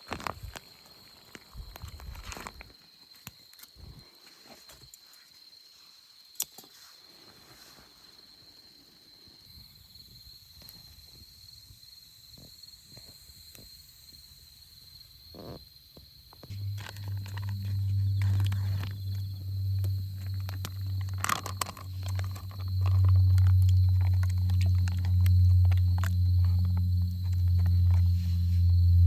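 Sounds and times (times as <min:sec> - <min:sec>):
insect trilling: 0:09.6 - 0:29.0.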